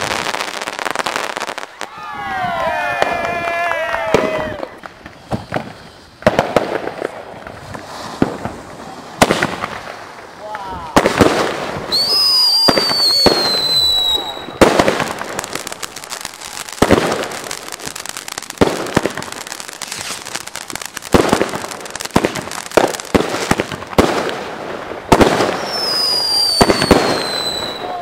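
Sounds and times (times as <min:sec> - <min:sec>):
firework bangs: 0:00.0 - 0:28.0
firework crackle: 0:00.0 - 0:28.0
falling firework whistle: 0:01.2 - 0:06.7, 0:11.8 - 0:23.3, 0:25.1 - 0:28.0.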